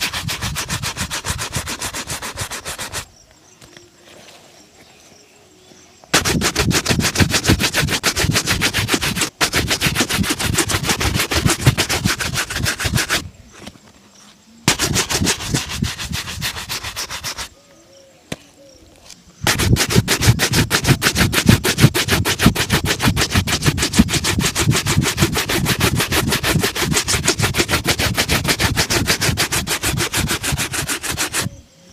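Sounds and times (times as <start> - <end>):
shoe being buffed: 0.0 - 3.1, 6.1 - 13.2, 14.7 - 17.5, 19.4 - 31.5.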